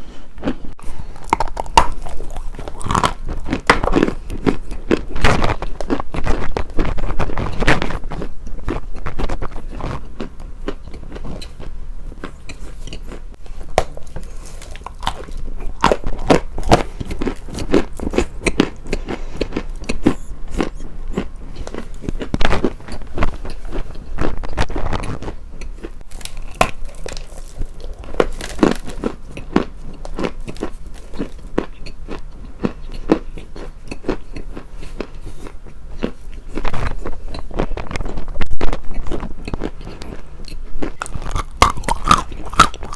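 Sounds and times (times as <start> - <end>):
brittle material crunching: 1.2 - 10.0, 13.7 - 18.6, 21.2 - 31.7, 34.9 - 42.9.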